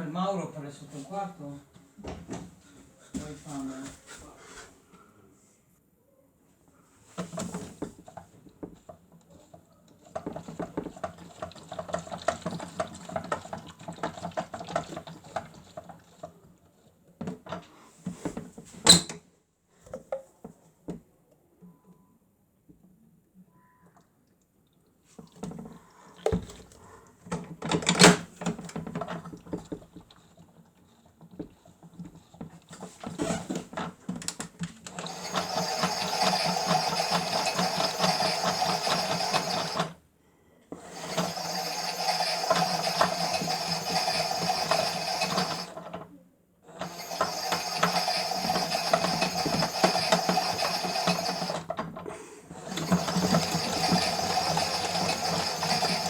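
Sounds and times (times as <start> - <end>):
toy washing machine motor: 7.2 - 17.8, 25.2 - 40.0, 40.7 - 56.0.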